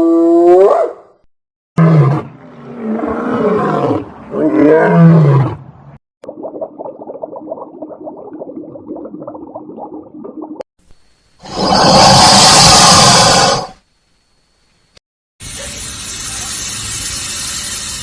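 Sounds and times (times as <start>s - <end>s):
big cat roaring: 1.8s - 5.6s, 11.4s - 13.7s.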